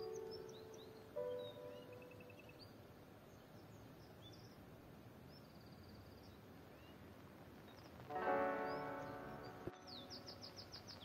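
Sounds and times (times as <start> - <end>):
bird chirps and trills: 0.0 - 4.6, 7.7 - 11.0
low background hiss: 0.0 - 11.0.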